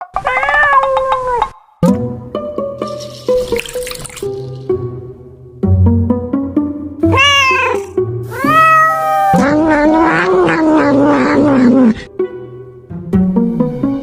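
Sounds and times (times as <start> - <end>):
cat meowing and yowling: 0.2 - 1.4, 7.1 - 12.0
plucked background music: 1.8 - 14.0.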